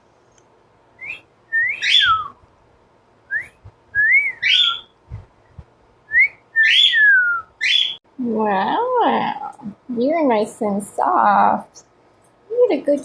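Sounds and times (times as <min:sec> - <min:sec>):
cockatiel whistling: 0:01.0 - 0:02.4, 0:03.3 - 0:05.0, 0:06.1 - 0:08.0
soft low thumps: 0:03.3 - 0:04.3, 0:05.0 - 0:06.3.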